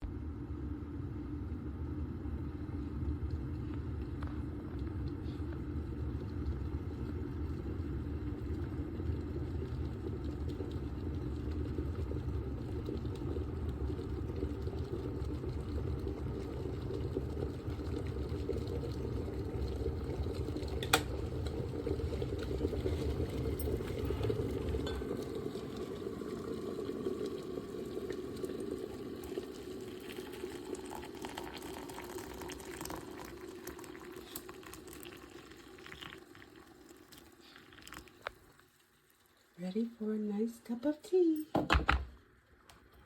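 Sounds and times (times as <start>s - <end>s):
electric kettle heating water: 0.0s - 43.0s
kettle switch click: 20.8s - 21.1s.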